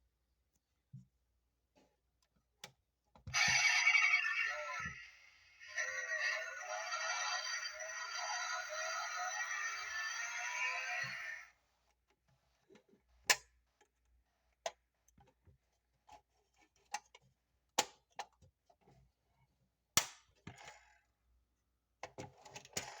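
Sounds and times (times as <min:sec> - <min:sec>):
music: 0:03.3 - 0:11.5.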